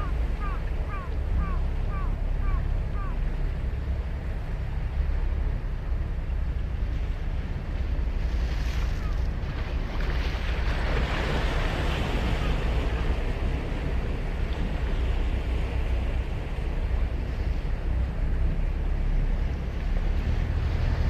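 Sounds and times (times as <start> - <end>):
wind rumble on microphone: 0.0 - 21.0
sea waves breaking on beach: 6.8 - 21.0.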